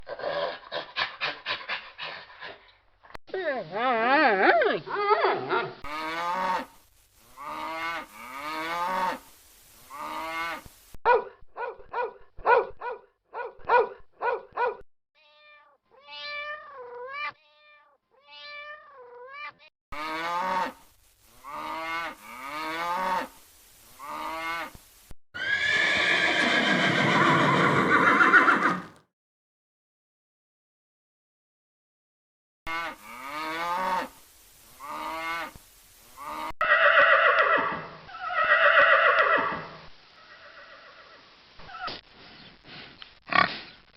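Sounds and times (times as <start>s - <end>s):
farm animal calls: 25.4s - 29.0s
loud harsh animal call: 25.4s - 29.0s.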